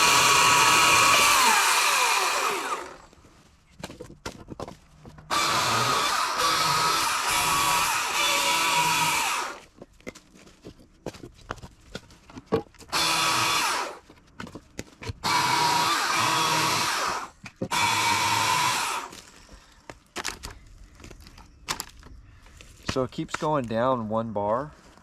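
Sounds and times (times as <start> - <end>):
electric chainsaw cutting wood: 0.0 - 3.1, 5.3 - 9.6, 12.9 - 14.0, 15.2 - 19.2.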